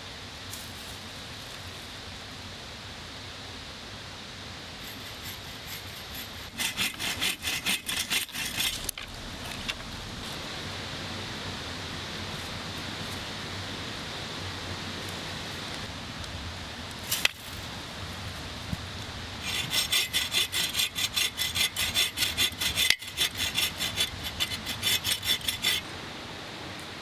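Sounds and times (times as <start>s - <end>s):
hand saw cutting wood: 4.8s - 9.8s, 19.4s - 25.9s.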